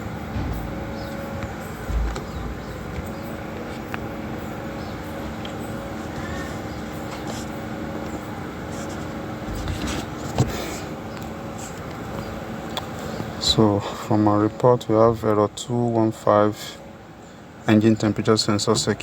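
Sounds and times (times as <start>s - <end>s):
low mechanical hum: 0.0s - 19.0s
short thump: 0.3s - 3.2s.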